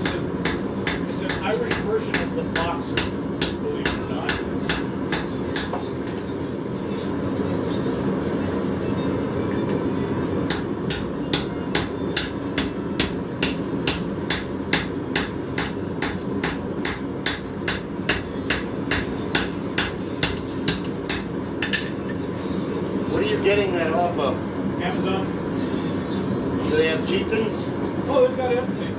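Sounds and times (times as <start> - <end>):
hammer striking steel on anvil: 0.0 - 5.9, 10.5 - 22.0.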